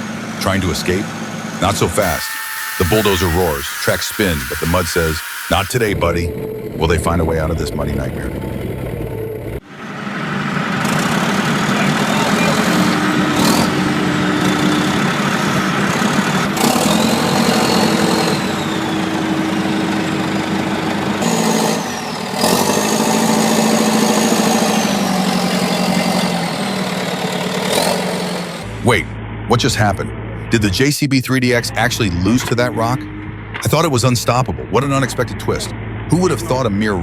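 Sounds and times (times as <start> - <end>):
thin high whines: 2.0 - 6.0.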